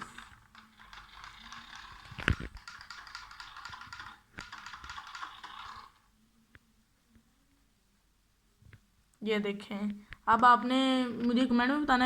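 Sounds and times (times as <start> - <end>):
toy car motor whirring: 0.0 - 6.1.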